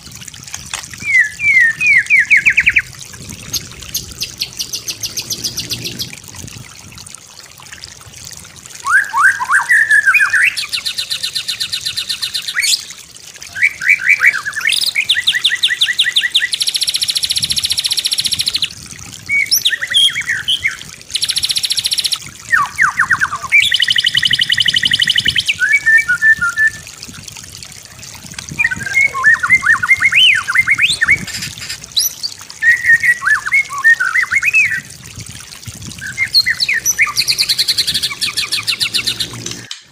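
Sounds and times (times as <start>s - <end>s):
songbird singing with trills: 1.0s - 2.9s, 4.0s - 6.1s, 13.5s - 18.7s, 19.3s - 26.8s, 28.6s - 31.3s, 32.0s - 34.9s, 36.0s - 39.7s.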